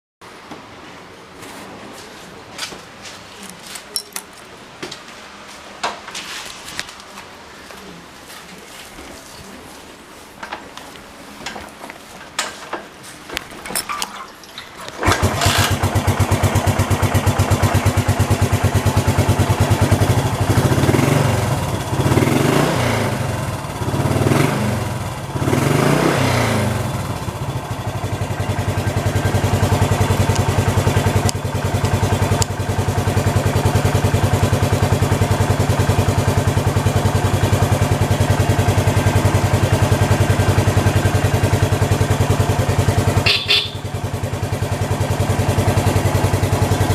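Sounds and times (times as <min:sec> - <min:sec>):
motorcycle engine revving and idling: 0:14.8 - 0:46.9.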